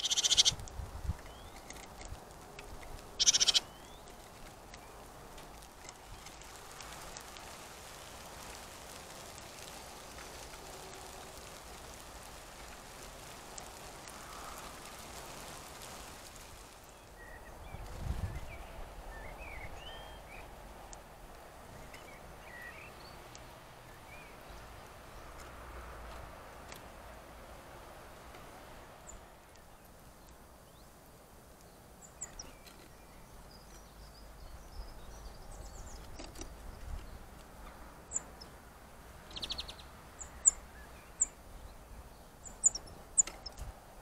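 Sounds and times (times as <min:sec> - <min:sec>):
faint high bird chirps: 0:00.0 - 0:00.6, 0:03.2 - 0:04.1, 0:39.3 - 0:41.8
steady hiss: 0:00.0 - 0:44.0.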